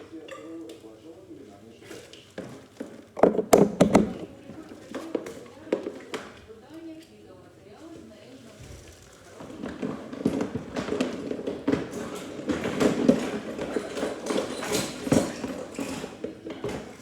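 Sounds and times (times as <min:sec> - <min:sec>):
sharp knocks and clatters: 0:02.8 - 0:04.6.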